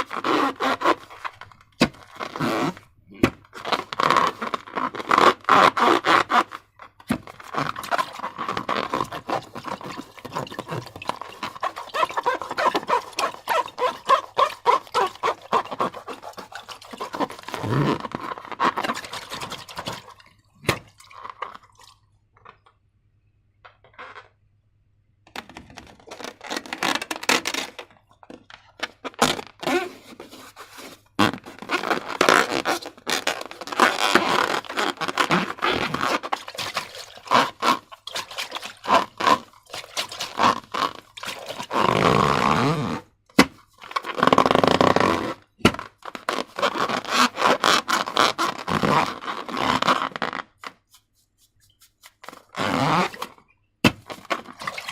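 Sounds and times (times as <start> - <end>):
slime squelching and crackling: 7.2 - 21.9.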